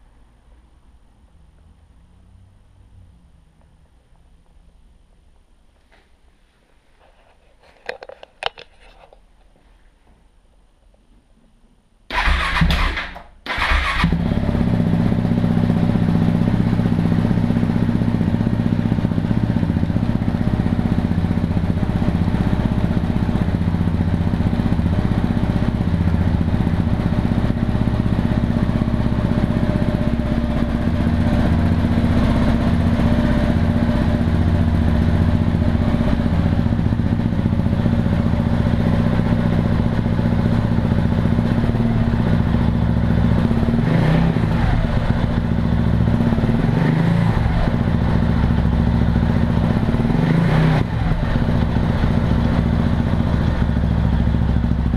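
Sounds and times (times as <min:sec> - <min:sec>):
motorcycle engine running: 0:13.6 - 0:54.9.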